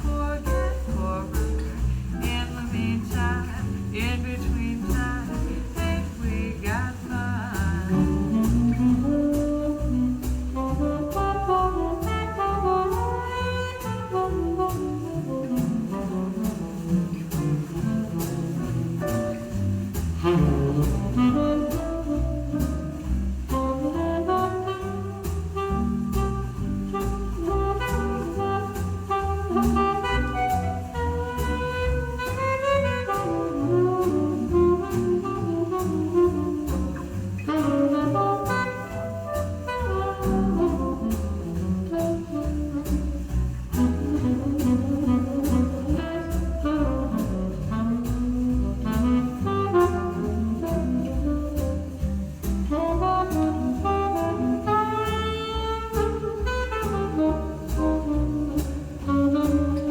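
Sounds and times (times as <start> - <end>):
double bass: 0.0 - 59.9
saxophone lead: 7.9 - 59.9.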